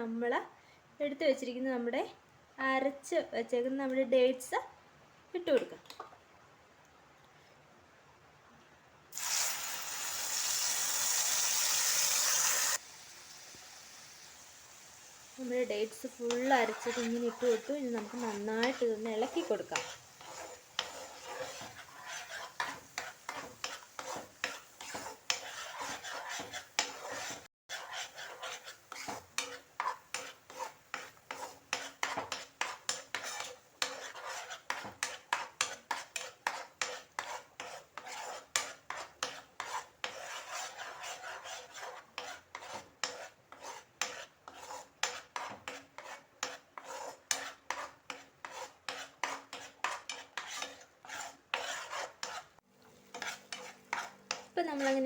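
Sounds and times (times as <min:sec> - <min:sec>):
utensil scraping paste in pan: 0:13.6 - 0:55.0.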